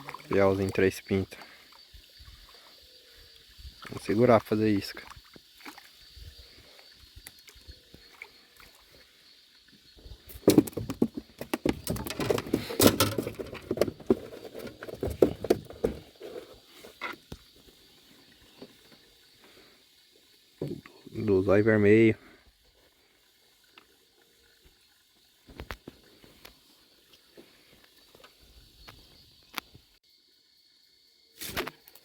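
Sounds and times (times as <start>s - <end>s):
knocks clicks and rattles: 10.5s - 16.0s.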